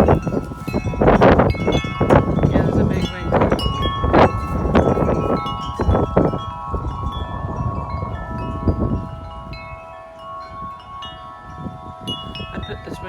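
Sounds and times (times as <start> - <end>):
wind buffeting microphone: 0.0 - 13.0
wind chimes ringing: 0.0 - 13.0.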